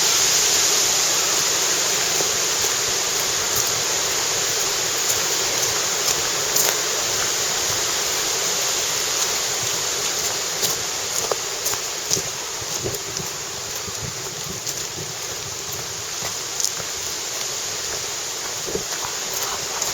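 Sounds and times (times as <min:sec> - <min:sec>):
wind thrashing forest trees: 0:00.0 - 0:19.9.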